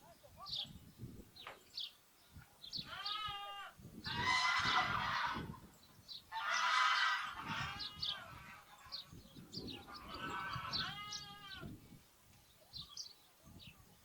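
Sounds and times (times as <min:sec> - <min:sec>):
sparrows chirping: 0:00.0 - 0:04.4, 0:05.6 - 0:14.0
lambs bleating: 0:02.8 - 0:05.5, 0:10.0 - 0:11.7.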